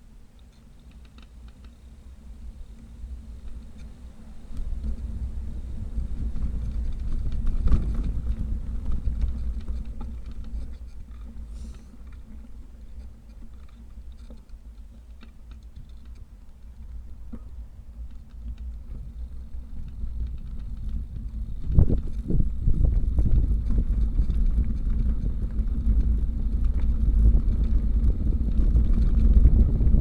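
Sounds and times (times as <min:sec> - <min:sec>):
wind rumbling on microphone: 0:01.5 - 0:30.0
bicycle rattling and clicking: 0:18.1 - 0:30.0.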